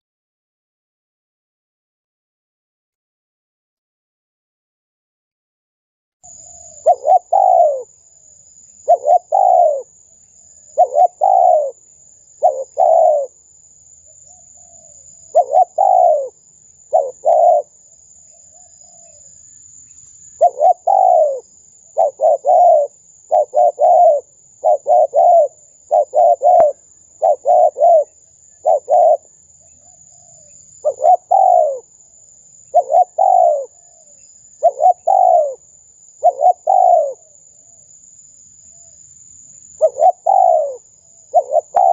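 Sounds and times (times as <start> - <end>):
dove cooing: 6.3 - 8.0, 8.8 - 10.0, 10.7 - 11.8, 12.4 - 13.4, 14.3 - 17.8, 20.3 - 31.9, 32.7 - 37.8, 39.8 - 41.9.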